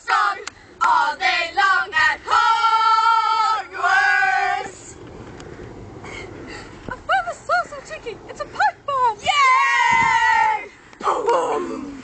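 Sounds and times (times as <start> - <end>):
voices singing a chant: 0.0 - 5.0.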